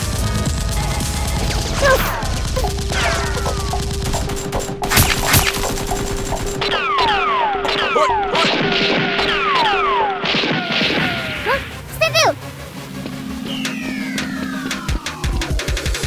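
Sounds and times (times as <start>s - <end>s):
ricochet whines: 1.8s - 11.4s
gunfire sound effects: 1.9s - 11.4s.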